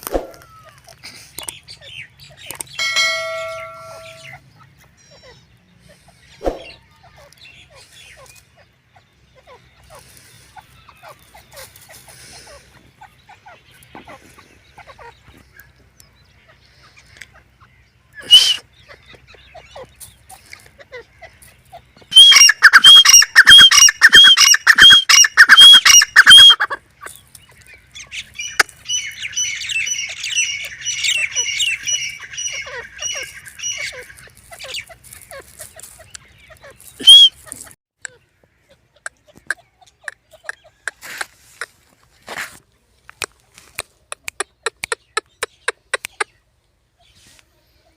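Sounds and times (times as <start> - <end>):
small birds chirping: 0.0 - 47.9
francolin calling harsh notes: 2.7 - 4.4, 22.1 - 26.7, 37.0 - 37.4.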